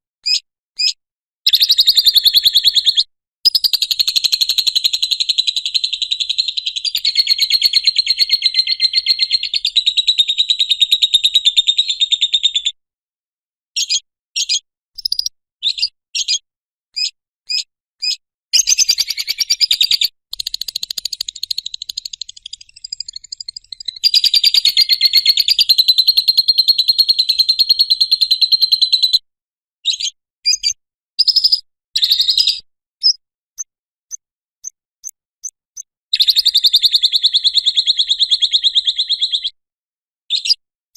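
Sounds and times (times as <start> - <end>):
lovebird chattering trills: 1.5 - 11.2, 18.6 - 27.4.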